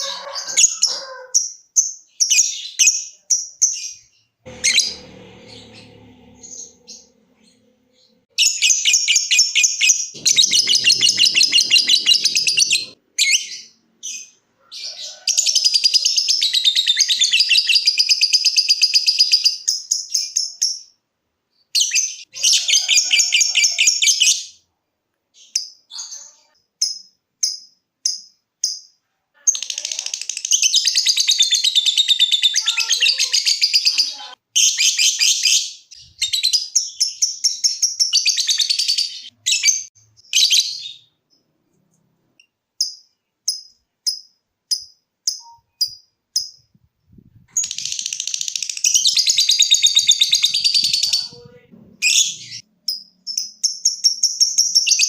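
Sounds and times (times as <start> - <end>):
lovebird chattering trill: 8.4 - 13.7.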